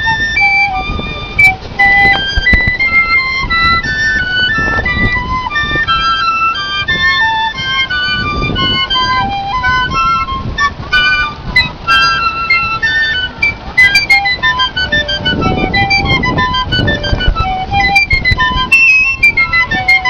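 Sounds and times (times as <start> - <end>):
piccolo melody: 0.0 - 20.0.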